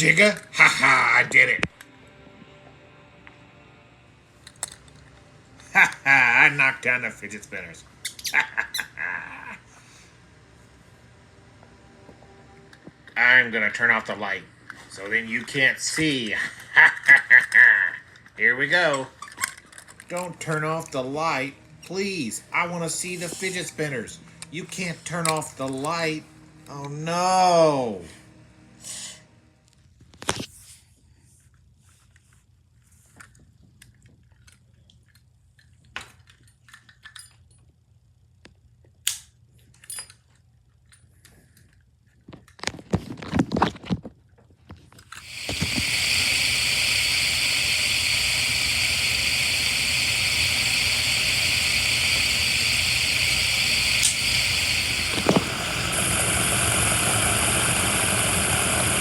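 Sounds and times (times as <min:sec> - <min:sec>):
small objects clicking and knocking: 0:04.4 - 0:05.1, 0:16.6 - 0:20.6, 0:33.1 - 0:37.8
loud steady whirring: 0:45.2 - 0:59.0.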